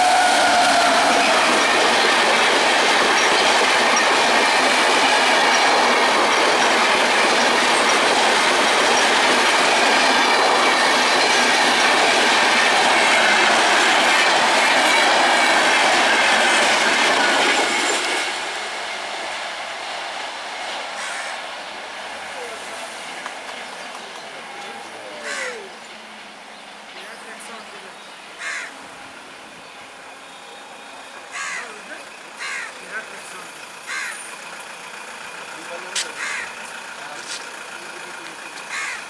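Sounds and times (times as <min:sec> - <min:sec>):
high wheel squeal: 0:00.0 - 0:02.4
train wheels rumbling on rails: 0:00.0 - 0:39.0.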